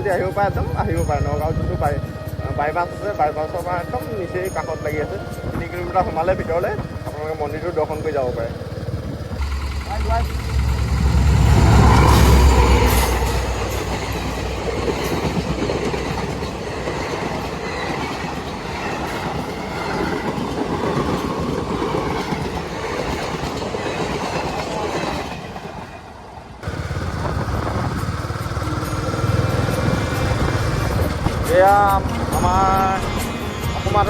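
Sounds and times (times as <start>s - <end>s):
motorcycle wind and road noise: 0.0s - 3.4s, 4.7s - 16.0s, 26.6s - 34.0s.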